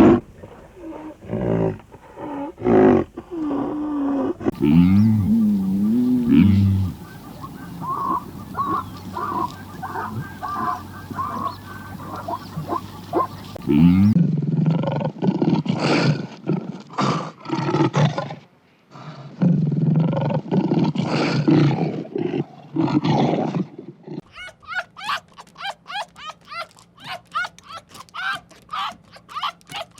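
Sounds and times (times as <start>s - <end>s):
big cat roaring: 0.0s - 18.2s
rhythmic animal calls: 4.5s - 14.2s, 24.3s - 29.9s
steady hum: 4.5s - 14.2s.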